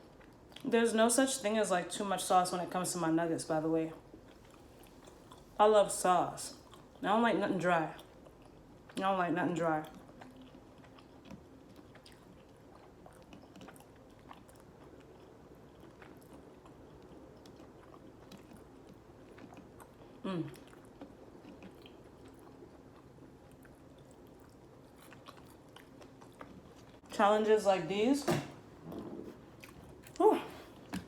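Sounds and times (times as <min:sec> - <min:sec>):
person chewing: 0:08.0 - 0:09.0, 0:09.8 - 0:27.1, 0:28.8 - 0:31.0.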